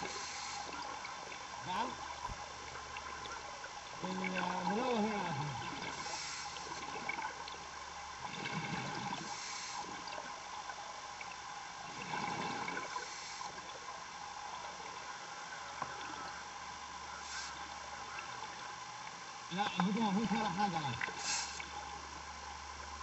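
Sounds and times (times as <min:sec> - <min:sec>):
diver breathing through scuba gear: 0:00.0 - 0:00.7, 0:05.9 - 0:06.8, 0:09.2 - 0:10.0, 0:13.0 - 0:13.6, 0:21.2 - 0:21.7
electronic hiss and hum: 0:00.0 - 0:23.0.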